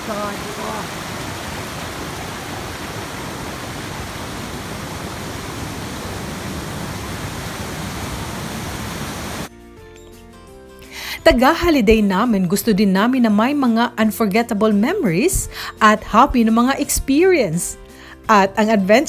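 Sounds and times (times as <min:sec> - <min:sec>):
rushing stream water: 0:00.0 - 0:09.5.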